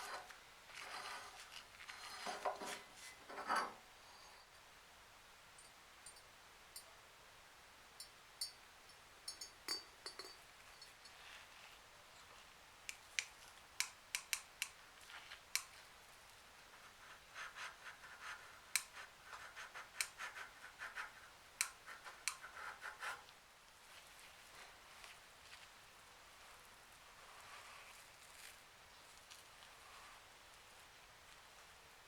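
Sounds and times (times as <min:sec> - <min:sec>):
sharp clicks and taps on metal: 0:12.8 - 0:14.8, 0:15.4 - 0:15.8, 0:18.7 - 0:19.0, 0:21.6 - 0:22.4.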